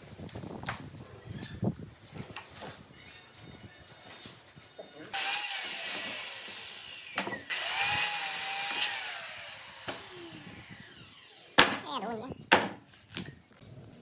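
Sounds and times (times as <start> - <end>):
power tool whirring: 5.1 - 11.7.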